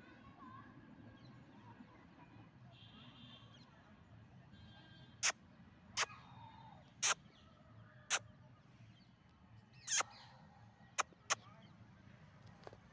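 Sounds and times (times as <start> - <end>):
faint bird chirping: 6.0 - 11.8
sharp bird calls: 7.0 - 7.4, 9.8 - 10.4.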